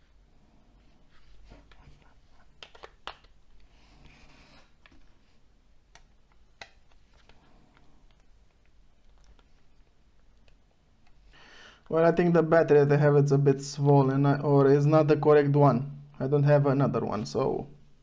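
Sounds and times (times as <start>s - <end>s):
plastic parts clicking: 2.6s - 3.7s, 5.9s - 11.2s.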